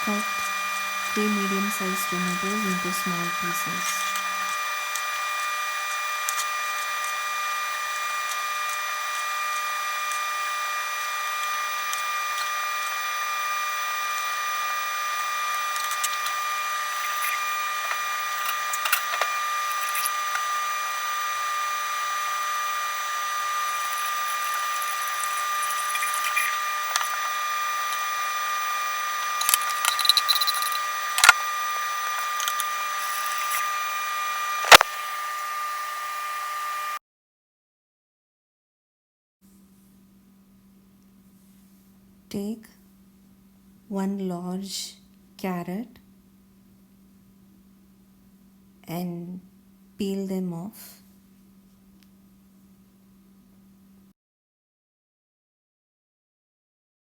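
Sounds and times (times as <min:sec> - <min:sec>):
steady high whine: 0:00.0 - 0:37.0.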